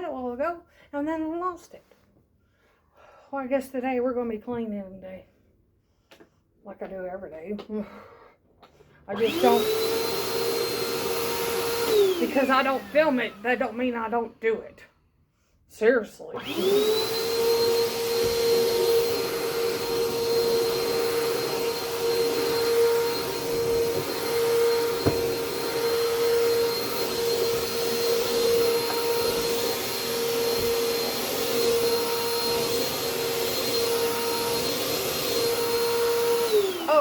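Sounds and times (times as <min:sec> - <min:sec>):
vacuum cleaner motor whining: 0:09.1 - 0:14.7, 0:16.3 - 0:37.0.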